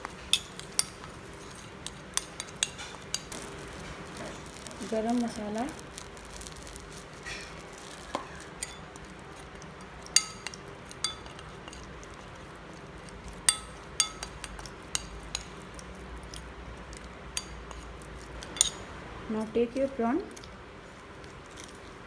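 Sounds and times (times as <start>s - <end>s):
spoon scraping a bowl: 0.2s - 3.3s
spoon clinking against a bowl: 0.3s - 3.3s, 8.1s - 8.9s, 10.0s - 12.2s, 13.3s - 15.6s, 17.3s - 18.8s.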